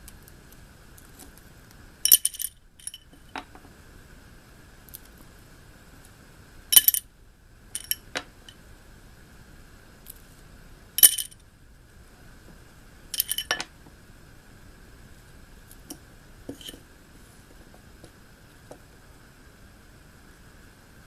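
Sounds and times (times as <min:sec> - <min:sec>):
toy rings clinking: 0:02.1 - 0:03.3, 0:06.7 - 0:07.0, 0:07.8 - 0:08.2, 0:11.0 - 0:11.4, 0:13.2 - 0:13.7.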